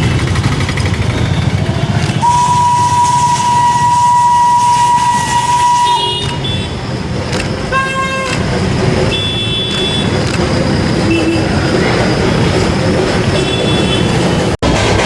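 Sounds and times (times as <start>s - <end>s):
train rumble: 0.0s - 15.0s
steam locomotive whistle: 2.2s - 6.7s.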